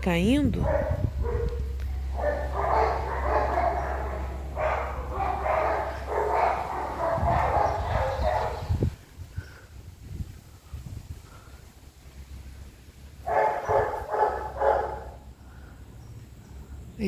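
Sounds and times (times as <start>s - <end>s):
steady low hum: 0.0s - 17.0s
small dogs barking and yapping: 0.6s - 9.0s, 13.2s - 15.3s.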